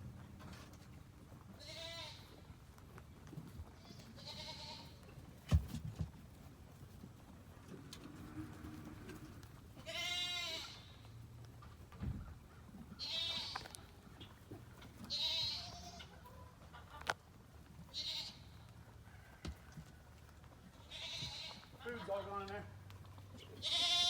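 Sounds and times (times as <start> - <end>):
livestock bleating: 1.6 - 2.3, 3.8 - 5.0, 9.8 - 11.0, 13.0 - 13.8, 15.0 - 16.1, 17.9 - 18.6, 20.8 - 22.3, 23.5 - 24.0.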